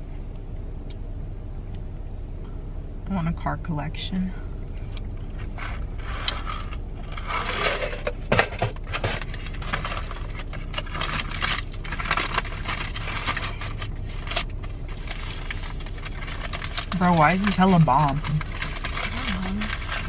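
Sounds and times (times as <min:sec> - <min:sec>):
steady low hum: 0:00.0 - 0:20.0
food packaging rustling: 0:04.8 - 0:20.0.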